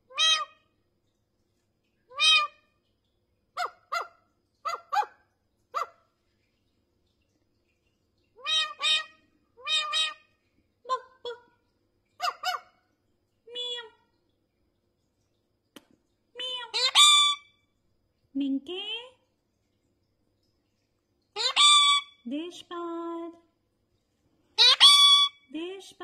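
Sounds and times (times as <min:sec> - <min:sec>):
parrot honking calls: 0:00.1 - 0:00.6, 0:02.1 - 0:02.6, 0:03.6 - 0:05.2, 0:08.4 - 0:10.3, 0:12.2 - 0:12.7, 0:16.6 - 0:17.5, 0:21.4 - 0:22.2, 0:24.6 - 0:25.4.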